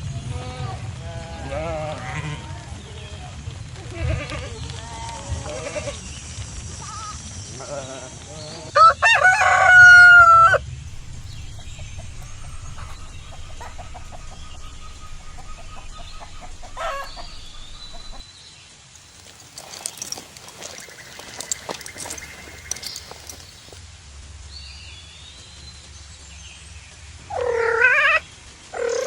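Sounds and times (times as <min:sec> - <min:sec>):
rooster crowing: 0:08.8 - 0:18.2
low rumble: 0:10.8 - 0:18.2.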